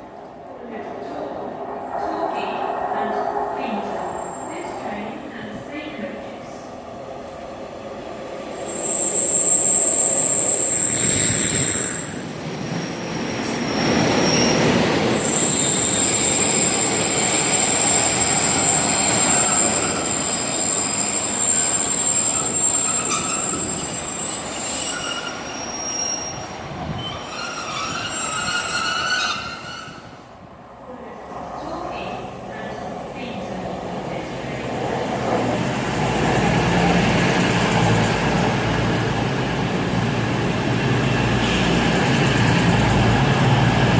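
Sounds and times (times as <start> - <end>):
train rumbling along track: 0.0 - 43.9
high-pitched wheel squeal: 8.6 - 13.0, 13.8 - 30.2.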